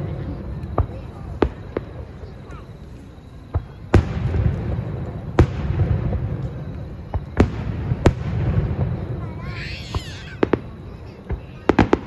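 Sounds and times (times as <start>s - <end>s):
firework booms: 0.0s - 2.6s, 3.3s - 12.0s
firework crack: 0.0s - 12.0s.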